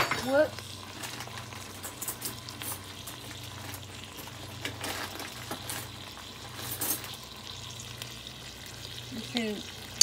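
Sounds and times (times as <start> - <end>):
chicken sizzling in a pan: 0.0 - 10.0.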